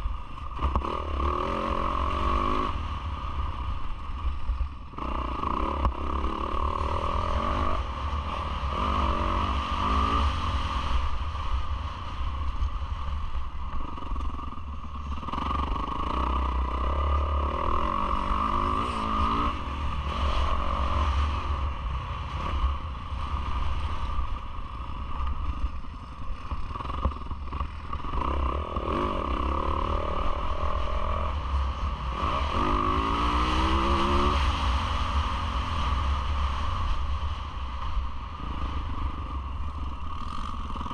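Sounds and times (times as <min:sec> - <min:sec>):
motocross engine revving: 0:15.3 - 0:21.4.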